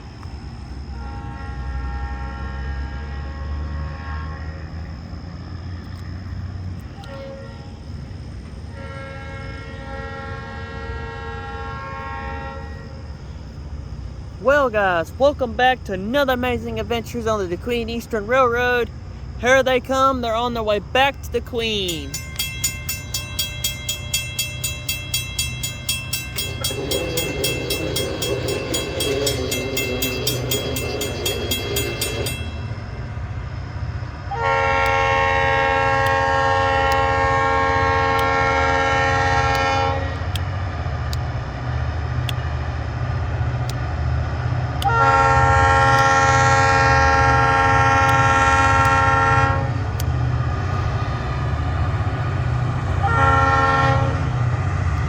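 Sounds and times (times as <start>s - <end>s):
diesel locomotive engine rumble: 0.0s - 55.0s
locomotive air horn blasts: 0.9s - 4.8s, 7.0s - 7.9s, 8.7s - 13.2s, 23.6s - 33.0s, 34.3s - 40.4s, 44.8s - 50.0s, 52.9s - 54.6s
fast even ticking: 20.4s - 32.9s.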